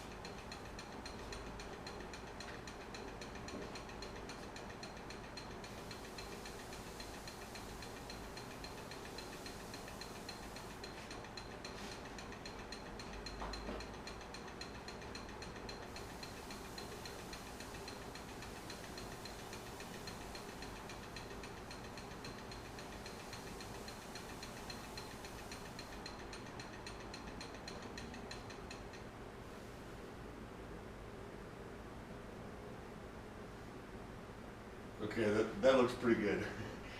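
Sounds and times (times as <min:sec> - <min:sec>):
wood lathe running: 0:00.0 - 0:28.8
faint steady ticking: 0:00.0 - 0:29.8.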